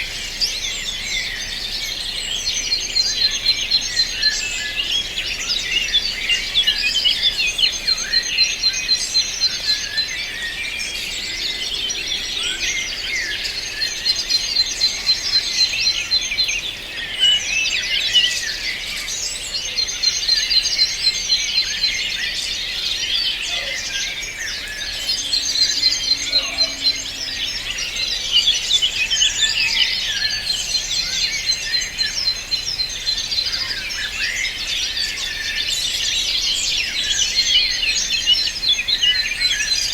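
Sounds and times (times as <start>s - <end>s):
songbirds chirping and singing: 0.0s - 39.9s
fast even bird trill: 23.0s - 30.4s.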